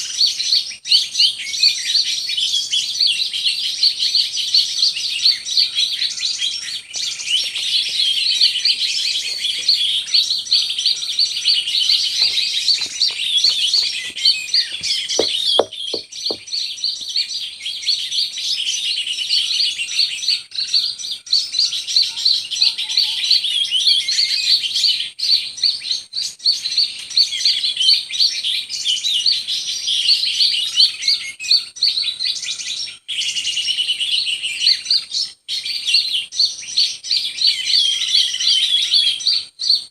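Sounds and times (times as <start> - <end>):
birds chirping and twittering: 0.0 - 39.9
short knocks: 12.2 - 16.4.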